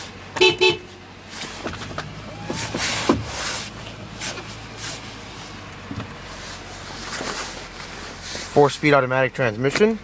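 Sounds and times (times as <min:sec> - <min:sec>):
car engine idling: 0:00.0 - 0:10.0
rustling and clicking handling noises: 0:01.3 - 0:08.6.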